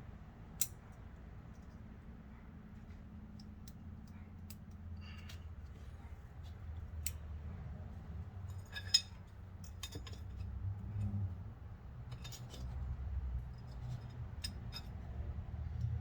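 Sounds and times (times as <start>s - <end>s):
low steady rumble: 0.0s - 16.0s
metallic clicks of tools and parts: 0.5s - 1.8s, 7.0s - 7.2s, 8.5s - 11.2s.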